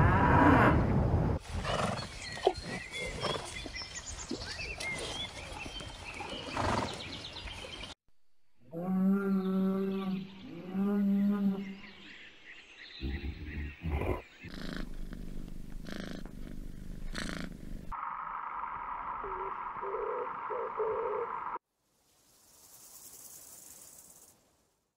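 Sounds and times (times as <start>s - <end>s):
cat purring: 14.5s - 17.9s.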